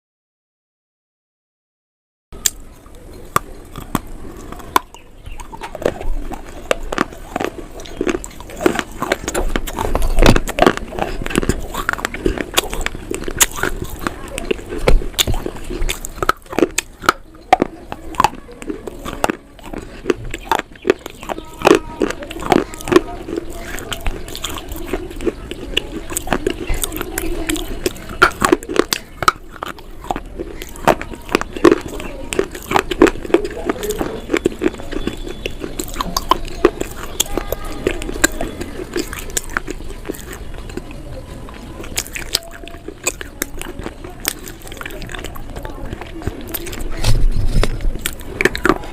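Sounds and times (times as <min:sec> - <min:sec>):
biting and chewing crunchy food: 0:02.4 - 0:48.9.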